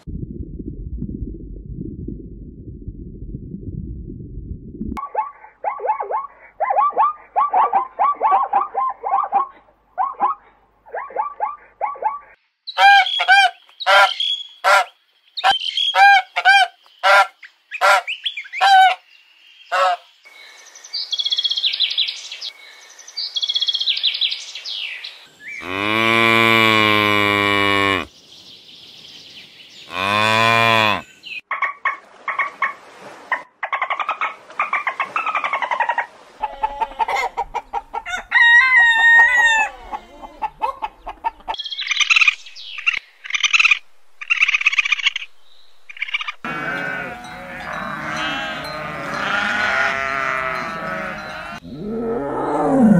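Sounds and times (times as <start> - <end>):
bird calls: 5.0 - 20.1, 39.7 - 45.3, 45.9 - 49.2
cattle mooing: 25.6 - 28.1, 29.9 - 31.0, 46.4 - 52.9
geese honking: 46.4 - 51.6.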